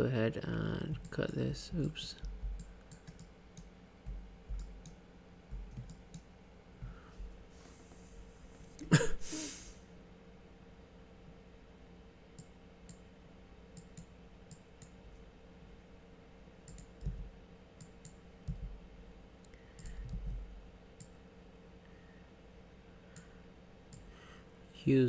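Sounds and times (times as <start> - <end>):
computer mouse and keyboard clicks: 1.0 - 6.3, 16.6 - 18.7, 19.4 - 20.4
soft low thumps: 2.2 - 2.7, 4.0 - 4.8, 5.5 - 5.9, 6.8 - 7.5, 17.0 - 17.4, 18.5 - 18.8, 20.0 - 20.6.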